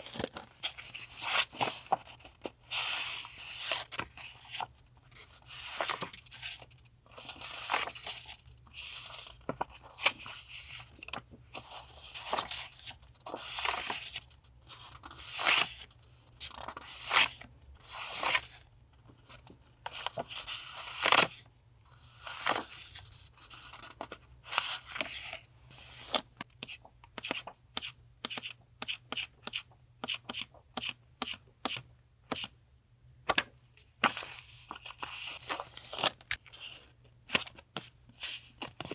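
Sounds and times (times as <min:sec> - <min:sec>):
paper rustling and crinkling: 0:00.0 - 0:14.2, 0:34.0 - 0:38.9.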